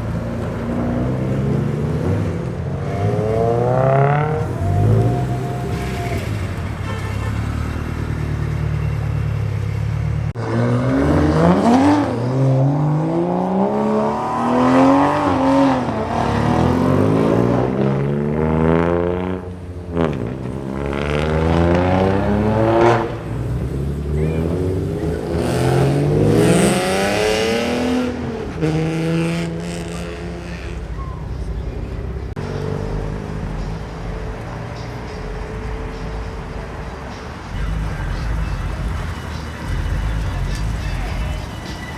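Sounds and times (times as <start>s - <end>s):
car engine idling and accelerating: 0.0s - 41.9s.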